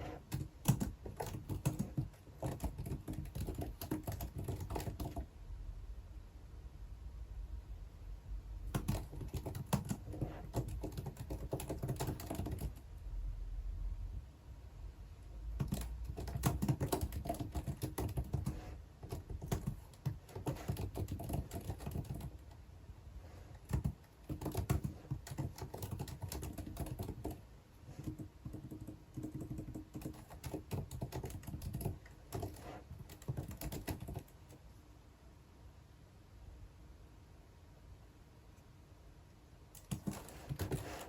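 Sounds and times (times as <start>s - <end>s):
typing on computer keyboard: 0.1s - 5.3s, 8.7s - 12.8s, 15.6s - 22.6s, 23.5s - 34.6s, 39.7s - 41.0s.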